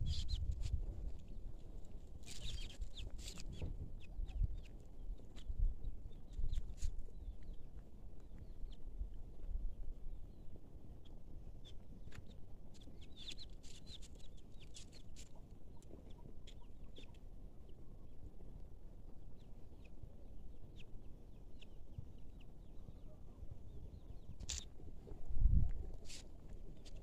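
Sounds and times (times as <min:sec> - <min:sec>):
birds chirping: 0:10.1 - 0:18.3.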